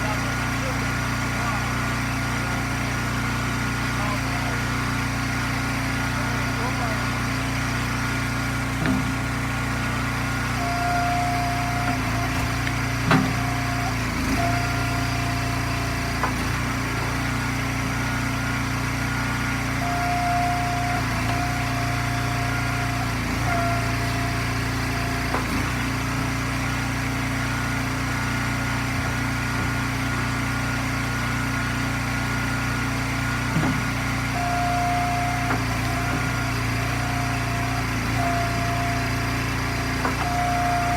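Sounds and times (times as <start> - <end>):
hydraulic whine: 0.0 - 40.9
log splitter engine running: 0.0 - 40.9
wood splitting knocks: 8.7 - 9.7, 11.1 - 17.3, 23.5 - 26.4, 33.4 - 34.3.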